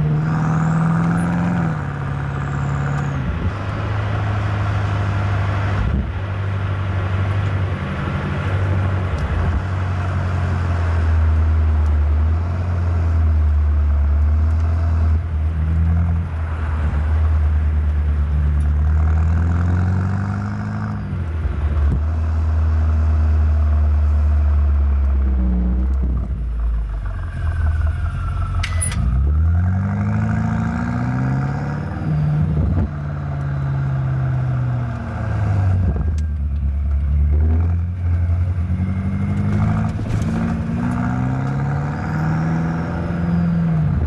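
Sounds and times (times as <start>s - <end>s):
car engine drone while driving: 0.0s - 44.0s.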